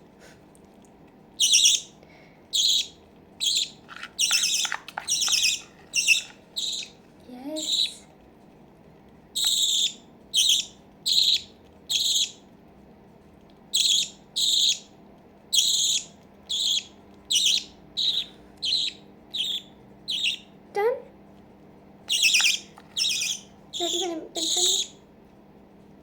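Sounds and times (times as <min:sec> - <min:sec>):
baby budgie begging calls: 0:01.4 - 0:08.0, 0:09.3 - 0:12.4, 0:13.7 - 0:20.9, 0:22.0 - 0:25.0.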